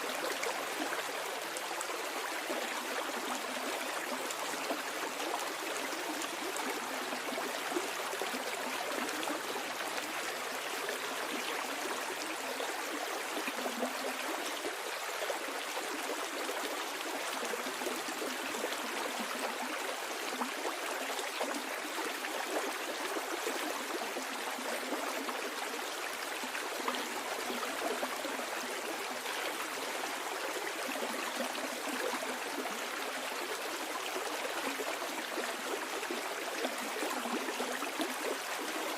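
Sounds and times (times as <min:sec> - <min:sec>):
stream babbling: 0:00.0 - 0:38.9.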